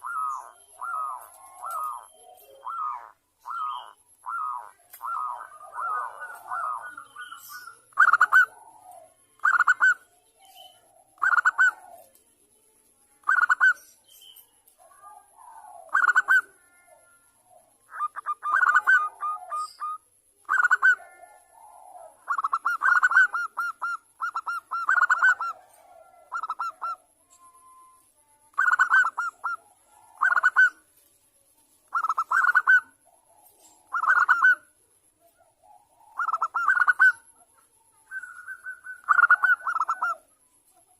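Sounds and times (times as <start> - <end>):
dove cooing: 0.0 - 12.2, 13.2 - 13.8, 14.8 - 30.9, 31.9 - 40.4
faint high-pitched tone: 27.0 - 31.8.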